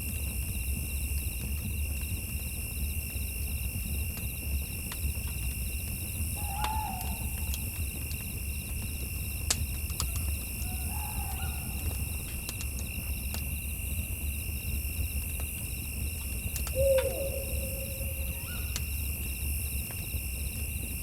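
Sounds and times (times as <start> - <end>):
campfire crackling: 0.0 - 21.0
insect chirring: 6.0 - 8.6, 9.9 - 13.6, 16.2 - 20.8
owl hooting: 6.4 - 7.8, 10.0 - 12.3, 16.6 - 19.0.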